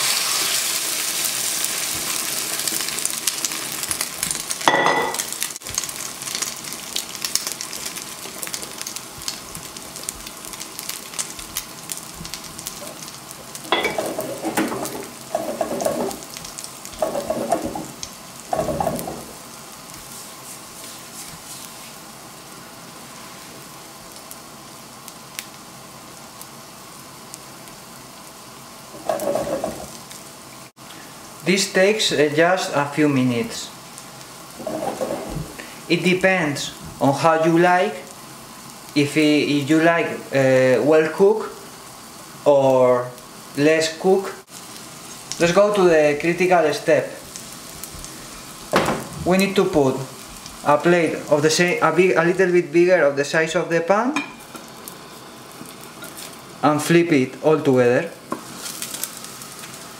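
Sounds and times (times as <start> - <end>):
omelette sizzling in a pan: 0.0 - 59.9
spatula scraping and knocking pan: 13.7 - 16.3, 17.0 - 19.4, 29.0 - 30.0, 34.6 - 35.6.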